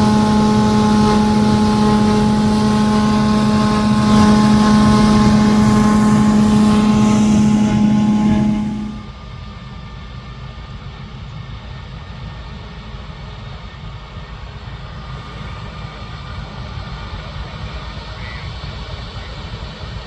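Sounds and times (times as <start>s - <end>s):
distant harvest machinery rumble: 0.0s - 9.1s
loud engine note: 0.0s - 9.1s.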